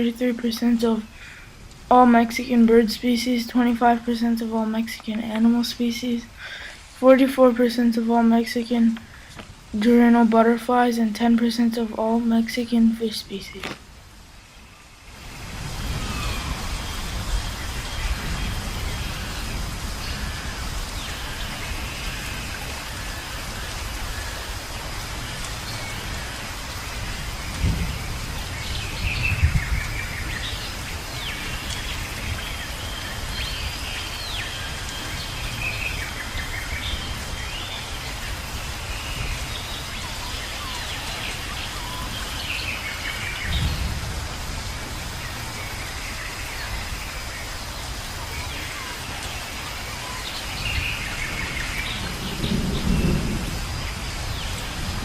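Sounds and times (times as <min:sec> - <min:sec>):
steady rain: 0:00.0 - 0:55.0
thunder rumbling: 0:15.2 - 0:22.9, 0:26.8 - 0:33.4, 0:43.3 - 0:45.9, 0:51.2 - 0:55.0
birds whistling and calling: 0:38.9 - 0:43.8.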